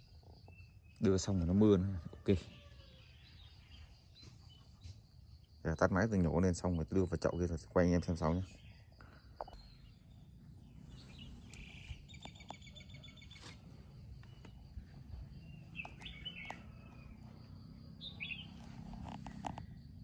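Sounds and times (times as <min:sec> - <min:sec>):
birds chirping: 0:00.0 - 0:20.0
low steady rumble: 0:13.6 - 0:20.0.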